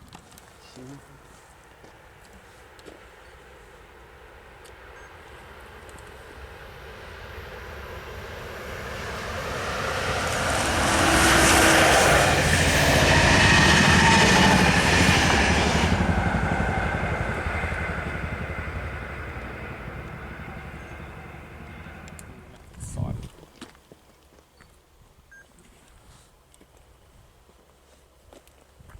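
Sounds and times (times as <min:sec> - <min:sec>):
train passing: 0:01.2 - 0:23.2.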